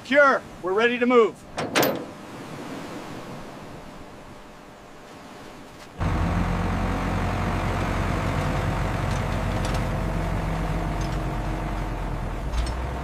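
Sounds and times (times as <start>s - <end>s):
heavy truck engine running: 6.0s - 13.0s.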